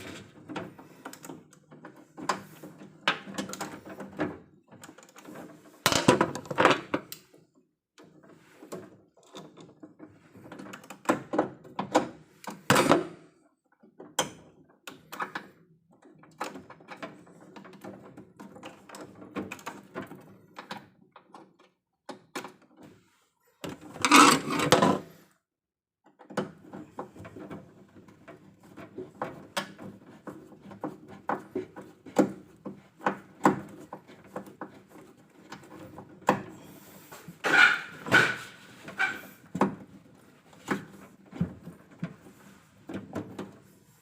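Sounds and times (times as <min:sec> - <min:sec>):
clicks and knocks of handling: 0:00.1 - 0:07.4, 0:13.7 - 0:23.0.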